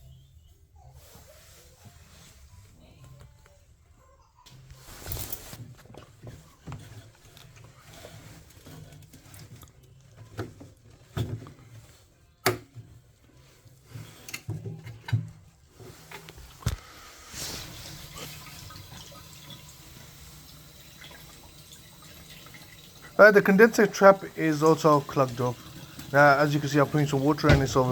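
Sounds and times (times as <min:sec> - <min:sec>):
water being poured: 0:17.4 - 0:20.0, 0:20.6 - 0:27.9.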